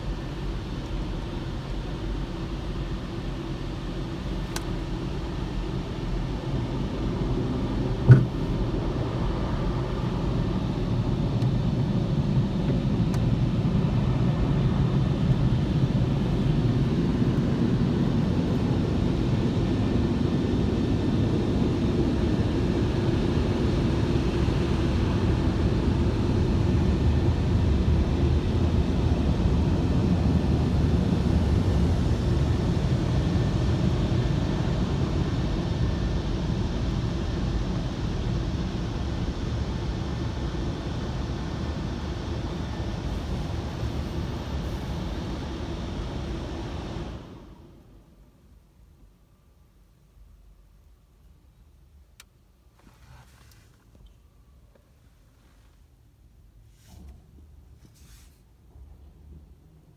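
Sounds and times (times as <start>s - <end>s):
car low rumble: 0.0s - 19.6s.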